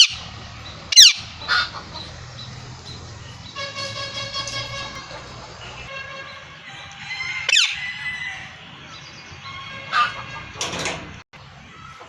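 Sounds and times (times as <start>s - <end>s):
parrot calling: 0.0s - 0.3s, 0.9s - 2.5s, 7.2s - 8.5s
parrot rasping squawk: 7.2s - 8.3s.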